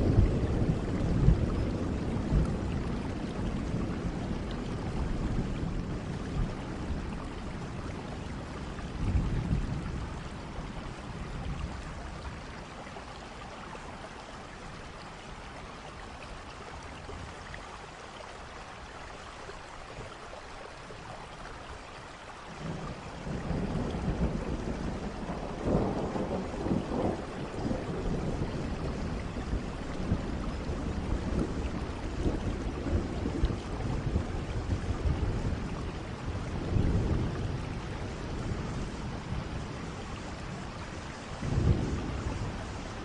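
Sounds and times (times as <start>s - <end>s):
thunder rumbling: 0.0s - 12.5s, 22.6s - 43.0s
steady rain: 0.0s - 43.0s.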